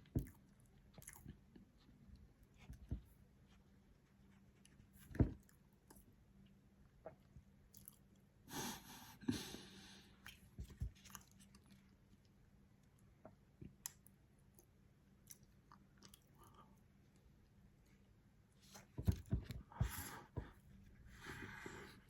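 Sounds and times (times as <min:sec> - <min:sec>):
chewing soft food: 0:00.0 - 0:08.4, 0:10.0 - 0:17.4
breath: 0:19.7 - 0:22.0.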